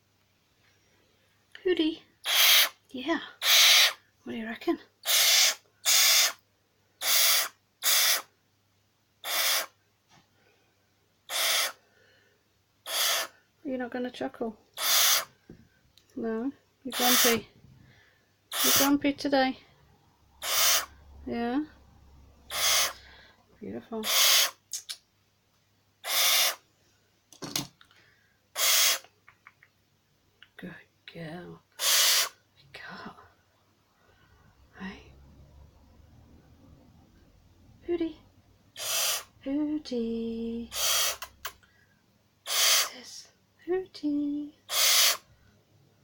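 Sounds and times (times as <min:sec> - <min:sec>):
owl hissing: 0:02.2 - 0:04.1, 0:05.0 - 0:06.4, 0:07.0 - 0:08.3, 0:09.2 - 0:09.8, 0:11.2 - 0:11.8, 0:12.8 - 0:13.4, 0:14.7 - 0:15.4, 0:16.9 - 0:17.5, 0:18.5 - 0:19.0, 0:20.3 - 0:21.1, 0:22.4 - 0:25.0, 0:26.0 - 0:26.7, 0:28.5 - 0:29.1, 0:31.7 - 0:32.4, 0:38.7 - 0:39.4, 0:40.6 - 0:41.6, 0:42.4 - 0:43.2, 0:44.6 - 0:45.3.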